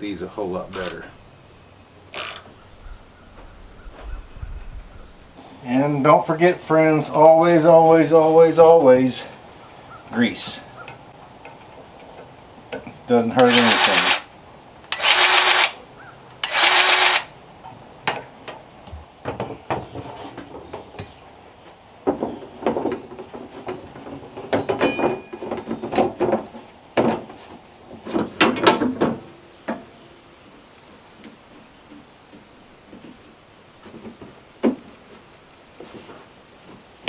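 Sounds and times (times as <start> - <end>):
grease gun squeaks: 13.4 - 14.3, 14.9 - 15.8, 16.4 - 17.3.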